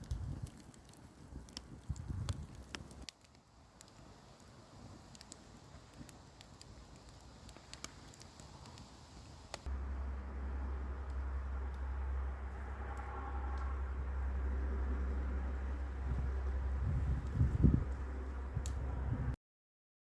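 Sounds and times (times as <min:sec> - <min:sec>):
wood fire crackling: 0:00.0 - 0:19.4
faint low rumble: 0:09.5 - 0:19.4.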